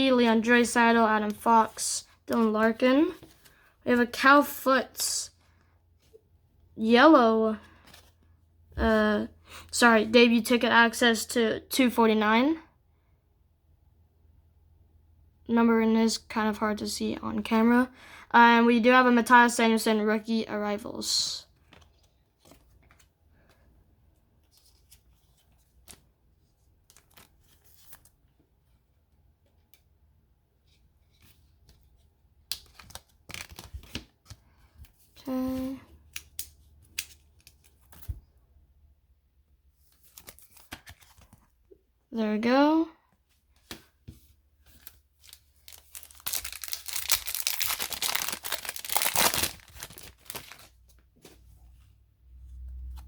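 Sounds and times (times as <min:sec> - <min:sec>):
trading cards rustling: 0:00.2 - 0:05.0, 0:32.5 - 0:38.2, 0:43.6 - 0:51.0
wrapper tearing and crinkling: 0:45.2 - 0:50.8.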